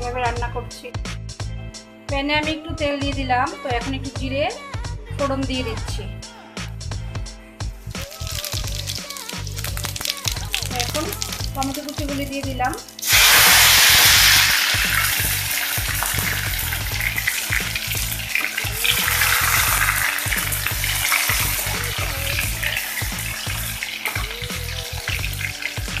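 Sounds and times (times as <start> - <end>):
tomatoes sizzling in oil: 7.8 - 26.0
steel spatula stirring: 12.9 - 26.0.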